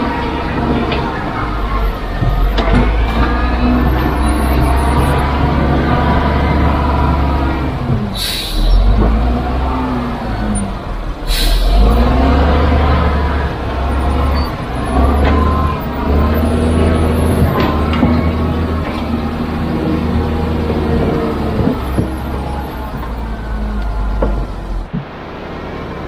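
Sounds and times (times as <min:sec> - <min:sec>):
diesel machinery engine under load: 0:00.0 - 0:26.0
air release hisses: 0:08.2 - 0:08.8, 0:11.3 - 0:11.8.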